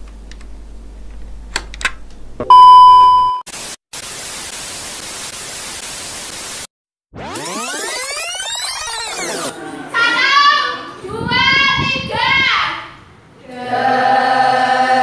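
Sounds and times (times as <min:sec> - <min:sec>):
low electrical hum: 0:00.0 - 0:03.0
high beep: 0:02.4 - 0:03.4
tv static hiss: 0:03.6 - 0:06.7
tape-rewind warble tones: 0:07.2 - 0:09.5.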